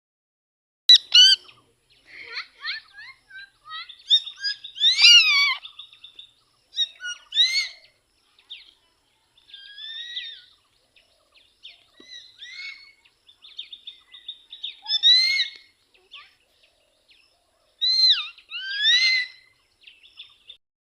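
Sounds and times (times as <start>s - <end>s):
parrot squawking: 0.9s - 1.4s, 2.3s - 5.6s, 6.8s - 7.8s, 9.6s - 10.5s, 12.1s - 13.0s, 14.8s - 15.6s, 17.8s - 19.4s.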